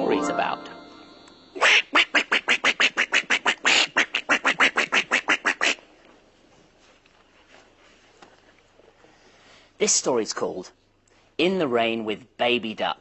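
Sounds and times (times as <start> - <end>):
rapid duck quacks: 1.6 - 5.8.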